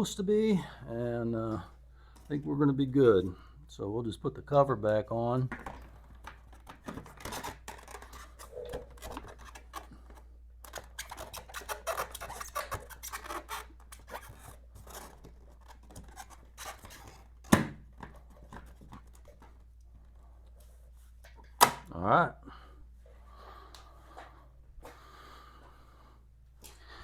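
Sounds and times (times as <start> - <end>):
cover clicks rattles and scrapes: 5.6 - 17.3.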